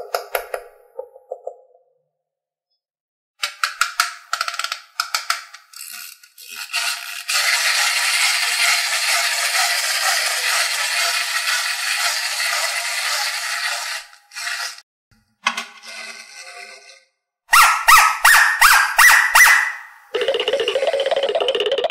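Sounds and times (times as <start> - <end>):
clockwork motor buzzing whir: 5.9 - 14.8.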